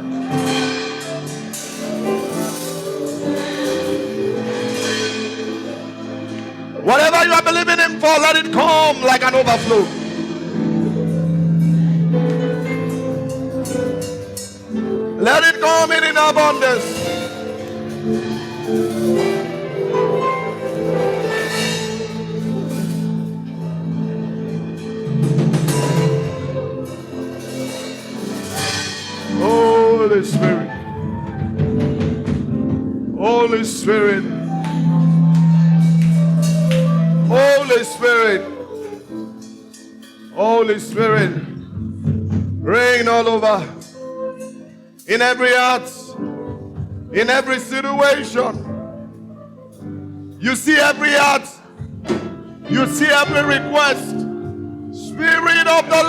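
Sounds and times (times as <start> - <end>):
light percussion: 0.0 - 7.5, 8.2 - 33.1, 34.0 - 43.1
soft instrumental worship music: 0.0 - 56.0
sustained keyboard chords: 0.0 - 56.0
person praying: 6.8 - 10.1, 15.2 - 17.8, 29.4 - 30.8, 33.2 - 38.8, 45.1 - 46.3, 47.1 - 48.9, 50.4 - 51.7, 52.6 - 56.0.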